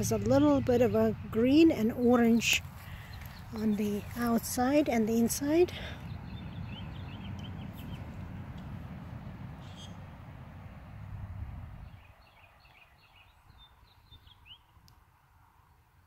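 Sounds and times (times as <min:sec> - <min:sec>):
small birds chirping: 0:00.0 - 0:08.8, 0:09.5 - 0:10.0, 0:11.8 - 0:14.9.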